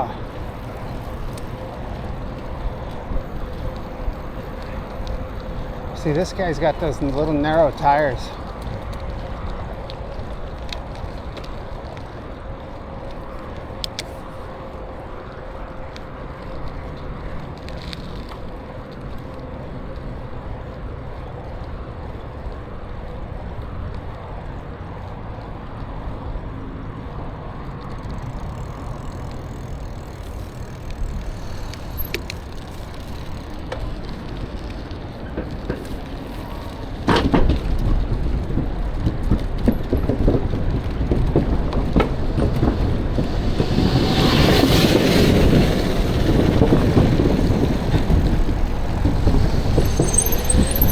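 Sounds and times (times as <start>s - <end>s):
tyres on pavement: 0.0s - 50.9s
wind on microphone: 37.3s - 50.9s.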